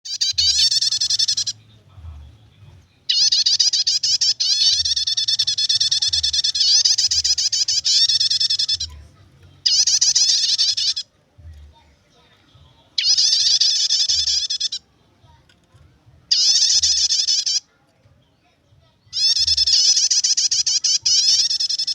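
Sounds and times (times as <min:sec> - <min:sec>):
bird chattering call: 0:00.1 - 0:01.6, 0:03.1 - 0:09.0, 0:09.6 - 0:11.1, 0:13.0 - 0:14.8, 0:16.3 - 0:17.6, 0:19.1 - 0:21.9.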